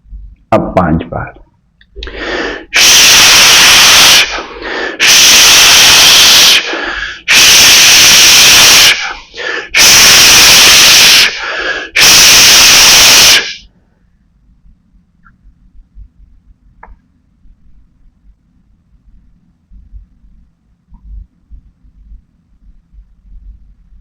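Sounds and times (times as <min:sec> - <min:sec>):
soft in-breaths: 0:02.0 - 0:02.8, 0:04.3 - 0:05.1, 0:06.6 - 0:07.3, 0:09.0 - 0:09.8, 0:11.3 - 0:12.0
person hissing exhalations: 0:02.0 - 0:07.9, 0:08.7 - 0:10.1, 0:10.8 - 0:13.7.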